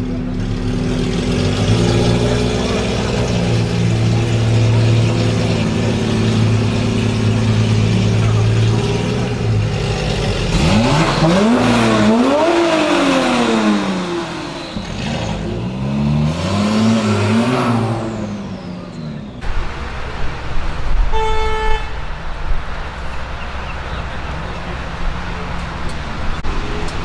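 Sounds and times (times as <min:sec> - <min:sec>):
car engine revving: 0:00.0 - 0:27.0
road noise: 0:00.0 - 0:27.0
car horn toot: 0:21.0 - 0:22.2.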